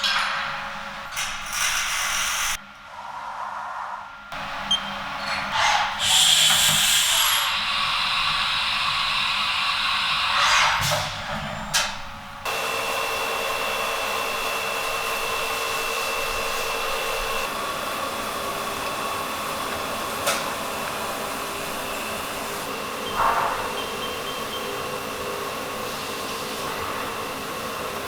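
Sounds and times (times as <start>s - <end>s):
milling machine running: 4.4s - 10.4s.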